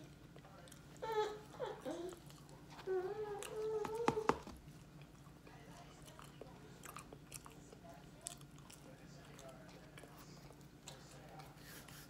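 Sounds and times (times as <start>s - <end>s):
chewing with wet lip smacks: 4.6s - 11.6s.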